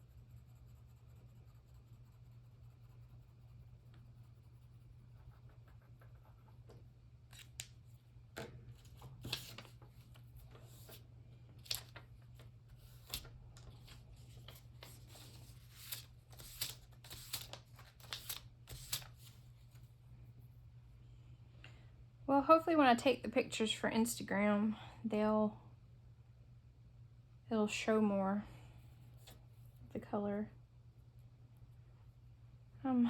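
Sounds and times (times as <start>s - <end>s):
paper being cut: 12.9s - 19.3s.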